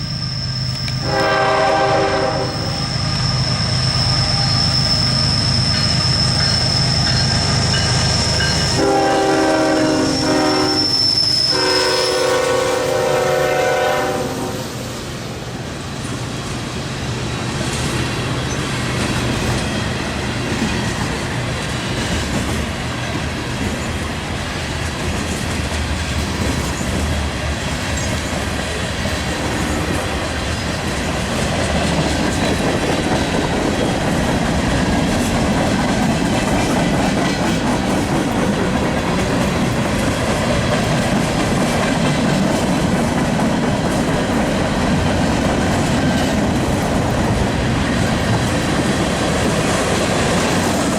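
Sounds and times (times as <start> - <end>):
freight train rolling past: 0.0 - 50.9
wheels clacking over rail joints: 17.6 - 50.9.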